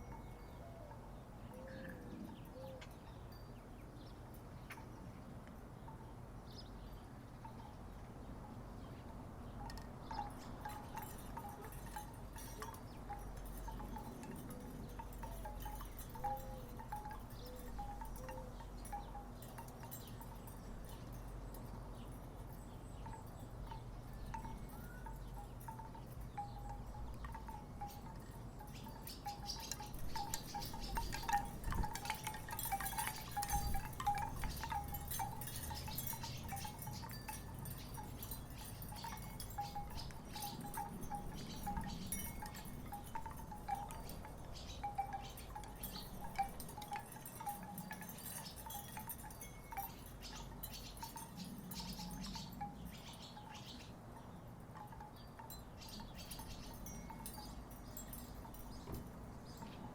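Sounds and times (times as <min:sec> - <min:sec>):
wooden wind chimes knocking: 0:09.5 - 0:53.6, 0:54.2 - 0:59.9.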